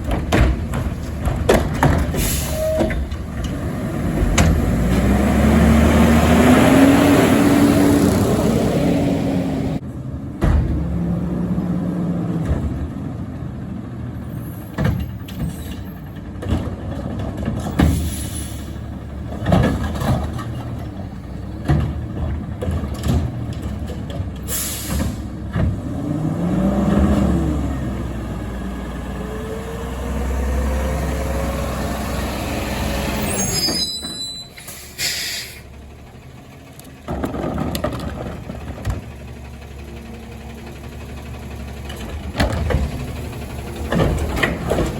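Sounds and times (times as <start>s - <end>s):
knocks and bangs: 0.0s - 2.2s
diesel engine running: 0.0s - 44.9s
air-brake hisses: 24.5s - 25.2s, 33.3s - 35.7s.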